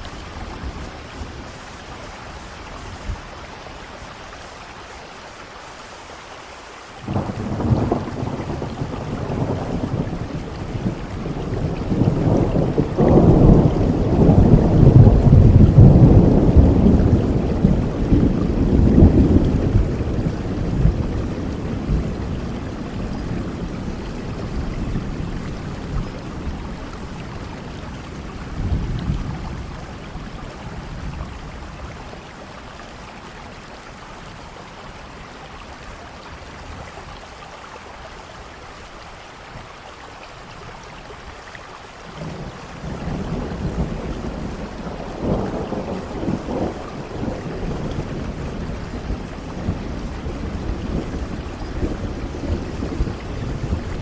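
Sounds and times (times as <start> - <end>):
steady rain: 0.0 - 54.0
thunder rumbling: 7.0 - 33.3, 42.0 - 54.0.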